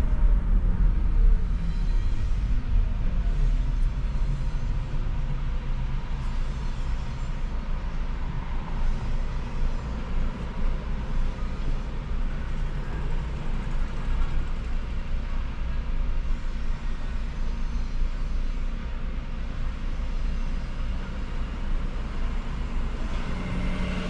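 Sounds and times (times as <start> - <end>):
car road noise rumble: 0.0 - 15.9, 20.8 - 24.0.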